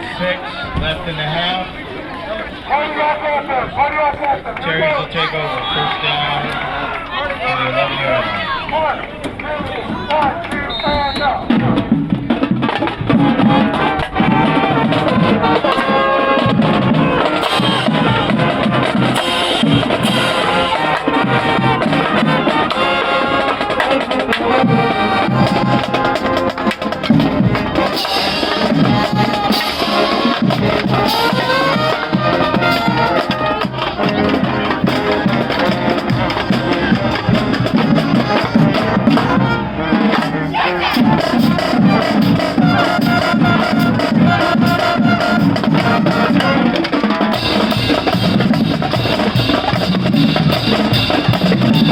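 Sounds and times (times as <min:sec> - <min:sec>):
marching band playing: 0:02.6 - 0:51.9
steady drum beat: 0:11.4 - 0:51.9.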